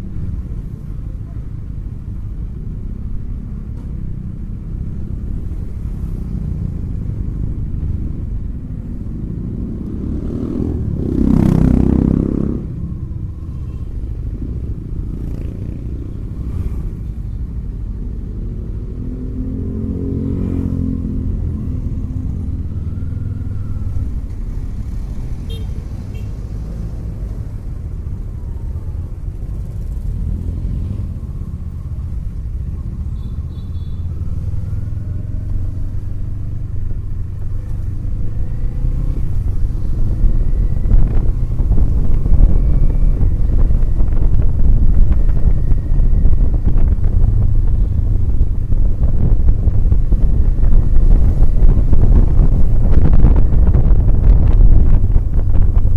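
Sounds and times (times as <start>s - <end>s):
motorcycle engine rumbling: 0.0s - 55.9s
traffic: 0.0s - 55.9s.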